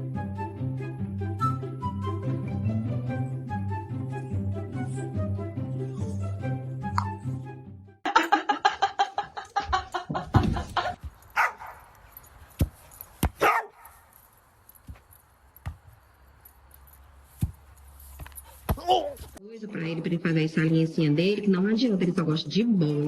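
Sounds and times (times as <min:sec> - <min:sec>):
dog barking: 0:11.4 - 0:11.9, 0:13.4 - 0:14.0.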